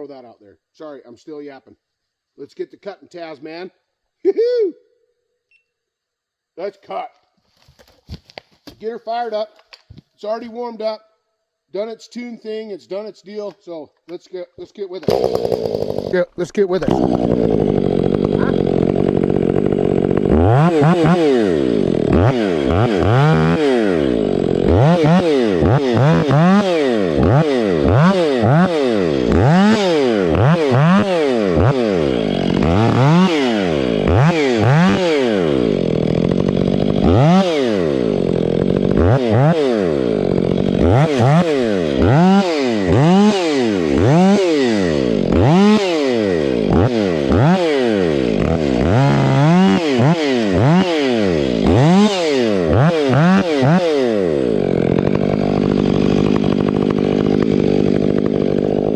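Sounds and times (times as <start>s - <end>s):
chainsaw revving: 15.0s - 58.9s.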